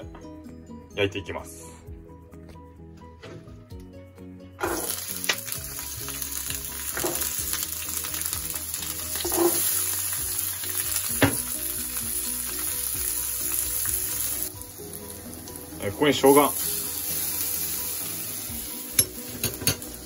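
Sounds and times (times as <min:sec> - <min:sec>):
vegetables sizzling in a frying pan: 0:04.6 - 0:20.0.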